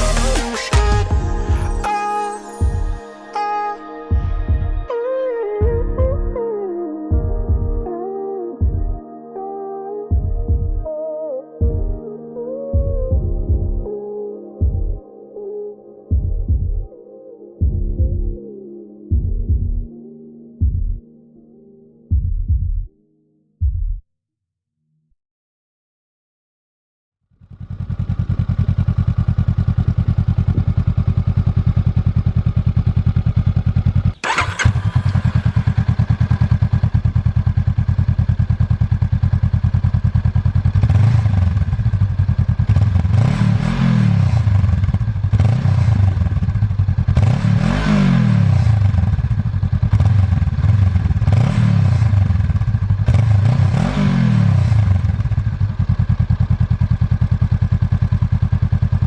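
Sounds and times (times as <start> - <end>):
motorcycle engine idling: 27.4 - 43.6, 44.4 - 47.4, 48.6 - 53.6, 54.8 - 59.0
motorcycle engine revving: 27.4 - 59.0.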